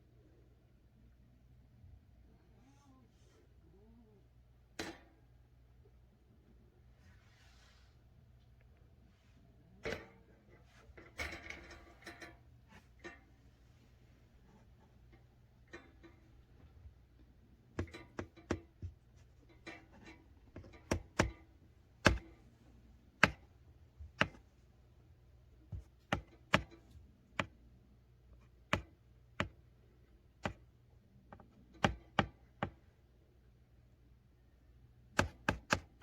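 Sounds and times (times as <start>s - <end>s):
sharp taps and knocks: 17.8s - 21.4s, 22.0s - 22.4s, 23.2s - 24.5s, 25.7s - 27.6s, 28.6s - 29.6s, 30.4s - 30.6s, 31.3s - 32.8s, 35.2s - 36.0s.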